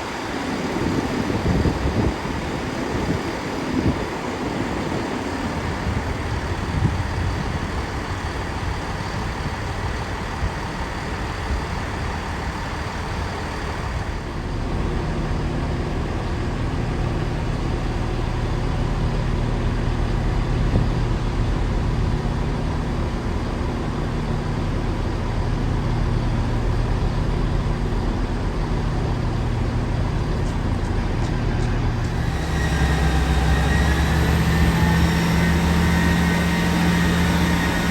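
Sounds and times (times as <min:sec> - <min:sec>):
diesel train engine drone: 0:00.0 - 0:37.9
even rushing noise: 0:29.6 - 0:37.9.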